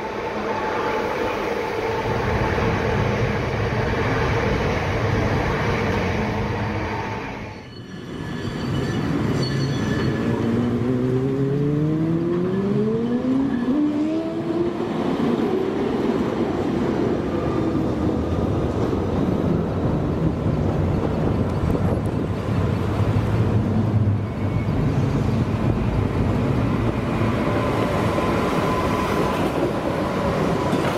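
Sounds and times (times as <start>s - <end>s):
train whine rising in pitch: 0.0s - 16.4s, 24.0s - 30.9s
train rumbling: 0.0s - 30.9s.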